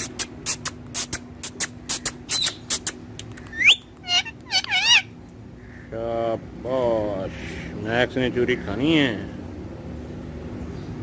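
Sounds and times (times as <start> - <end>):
parrot calling and whistling: 0.0 - 5.2.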